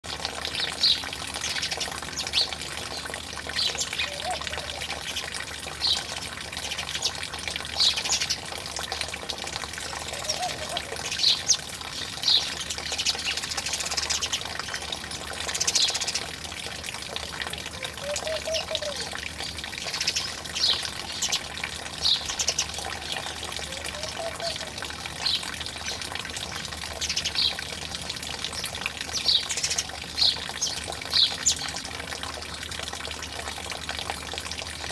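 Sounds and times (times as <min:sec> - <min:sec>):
water trickling: 0:00.0 - 0:34.9
dove cooing: 0:03.7 - 0:05.0, 0:09.9 - 0:11.2, 0:17.1 - 0:19.2, 0:22.8 - 0:24.9.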